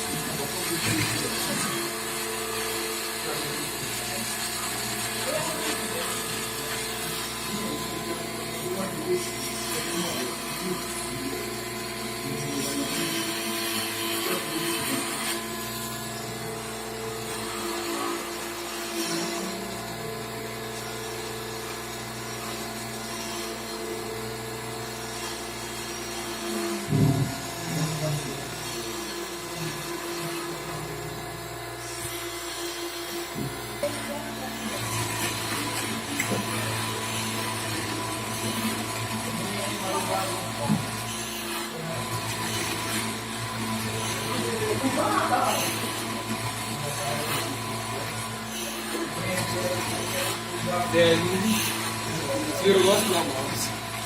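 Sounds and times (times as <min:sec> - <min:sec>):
cnc spindle motor whine: 0:00.0 - 0:54.0.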